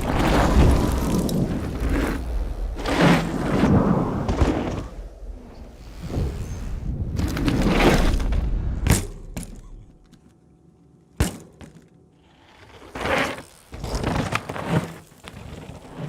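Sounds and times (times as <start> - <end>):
tyre and wind noise: 0.0 - 10.0
bike clattering over rough ground: 7.2 - 10.3, 12.6 - 16.0.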